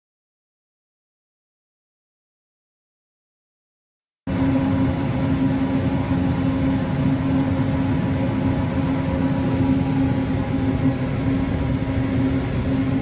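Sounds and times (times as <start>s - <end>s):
train rumble: 4.3s - 13.0s.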